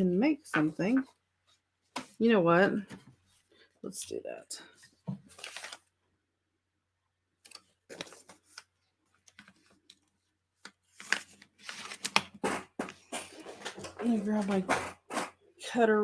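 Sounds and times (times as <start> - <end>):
paper rustling: 4.9 - 5.9, 7.4 - 15.3.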